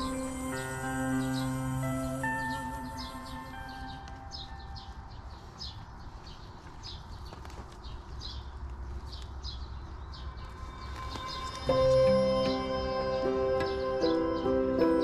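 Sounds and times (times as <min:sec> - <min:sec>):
background music: 0:00.0 - 0:05.2, 0:10.0 - 0:15.0
small bird chirping: 0:00.0 - 0:15.0.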